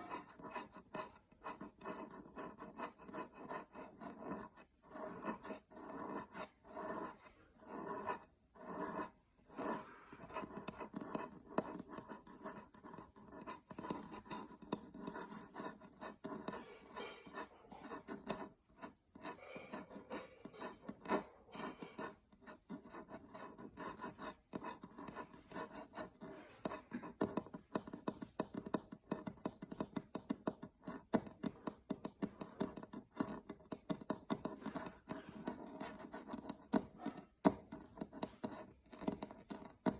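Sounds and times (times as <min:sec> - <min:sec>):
fingernails scratching a surface: 0:00.0 - 0:39.9.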